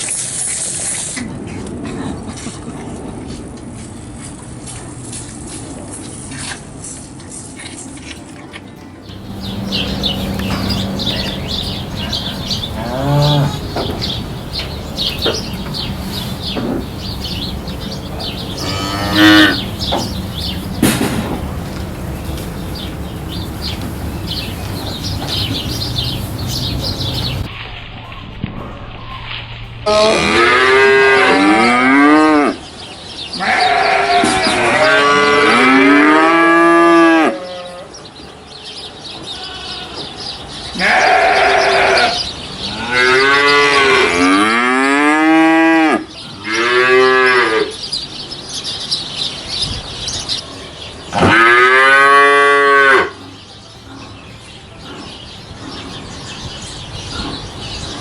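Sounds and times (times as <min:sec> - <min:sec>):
cattle mooing: 0:09.1 - 0:27.5, 0:29.9 - 0:32.6, 0:40.8 - 0:47.7, 0:51.2 - 0:53.2.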